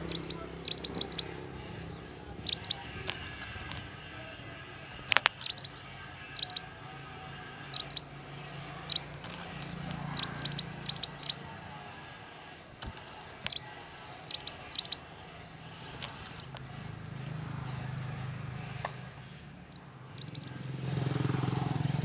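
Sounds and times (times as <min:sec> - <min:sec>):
bird high chirps: 0:00.0 - 0:04.0, 0:05.3 - 0:09.1, 0:10.0 - 0:12.6, 0:13.5 - 0:15.1, 0:19.6 - 0:21.3.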